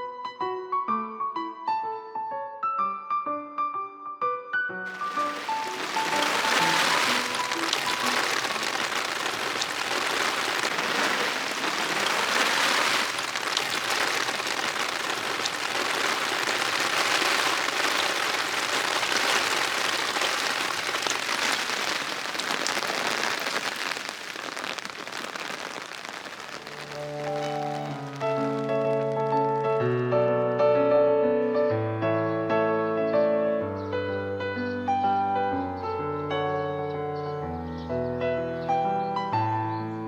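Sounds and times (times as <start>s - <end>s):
water drips ticking: 4.9s - 29.5s
rain falling: 4.9s - 29.8s.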